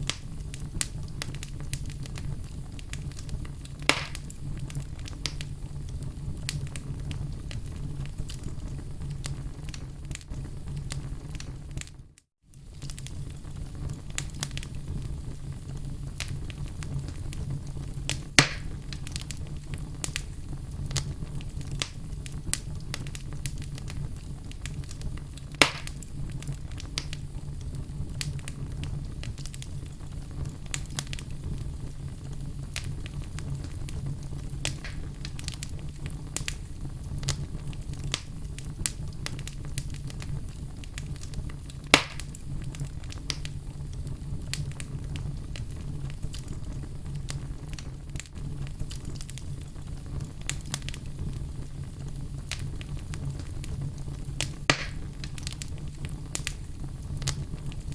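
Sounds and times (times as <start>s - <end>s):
fire pops: 0.0s - 57.9s
wood fire crackling: 0.0s - 57.9s
low steady rumble: 12.7s - 57.9s.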